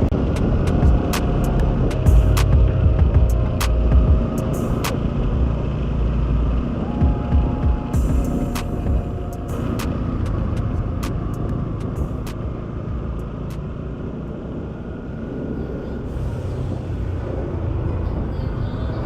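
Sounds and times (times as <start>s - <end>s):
motorcycle engine rumble: 0.0s - 19.0s
road noise: 0.0s - 19.0s
wind rumble: 0.0s - 19.0s
sharp ticks: 8.2s - 12.5s.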